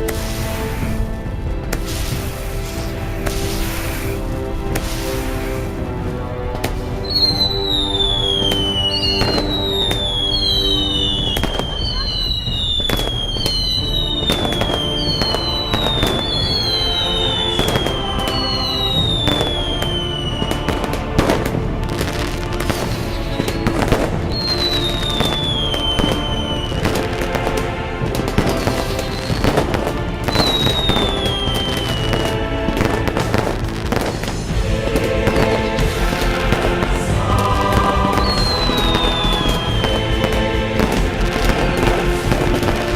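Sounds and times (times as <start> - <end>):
fireworks bangs and crackles: 0.0 - 42.9
music: 0.0 - 42.9
fireworks whistles falling in pitch: 7.0 - 27.1, 30.3 - 34.3, 37.8 - 42.6.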